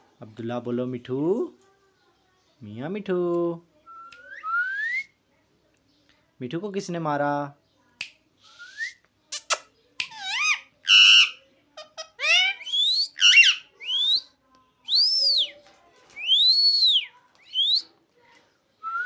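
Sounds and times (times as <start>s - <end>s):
parrot whistling calls: 10.0s - 11.4s, 12.0s - 14.3s, 14.9s - 15.5s, 16.2s - 17.9s.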